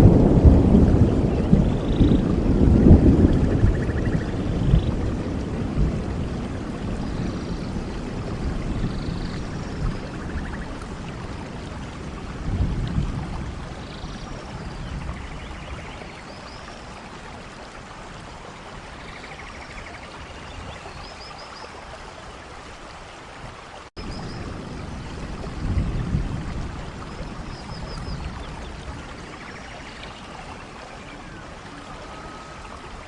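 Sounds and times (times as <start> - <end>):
steady rainfall: 0.0 - 33.0
faint bird chirps: 29.2 - 32.9.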